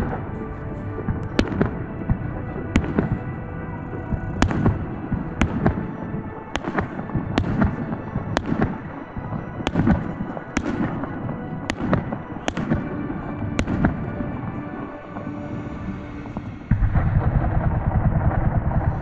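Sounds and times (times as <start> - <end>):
fireworks bangs: 1.2 - 3.3, 4.3 - 9.0, 9.6 - 14.6.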